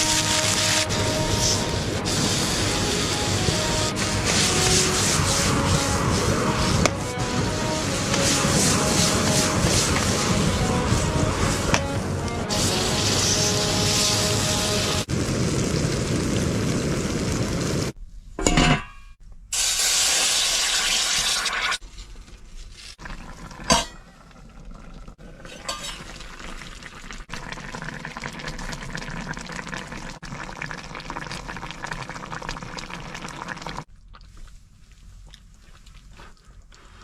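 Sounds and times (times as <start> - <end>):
rushing pour or hissing: 0.0 - 18.0
food sizzling in a pan: 12.6 - 17.9, 19.6 - 21.8.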